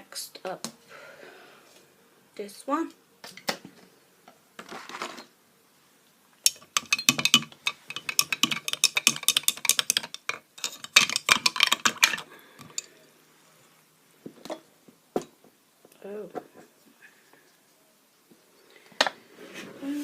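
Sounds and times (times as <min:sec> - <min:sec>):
hard objects clicking and clattering: 0:06.4 - 0:13.0.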